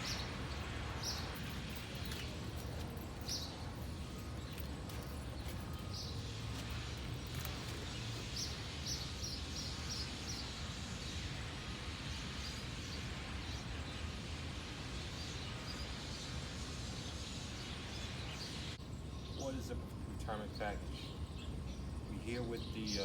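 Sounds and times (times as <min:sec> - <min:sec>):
bird chirping: 0:00.0 - 0:10.6
low outdoor rumble: 0:00.0 - 0:23.0.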